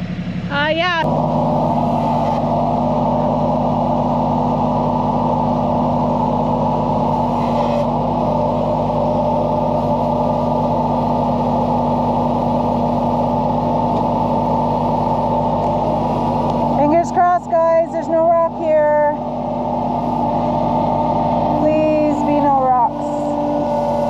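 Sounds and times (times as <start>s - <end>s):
diesel tractor engine running: 0.0s - 24.0s.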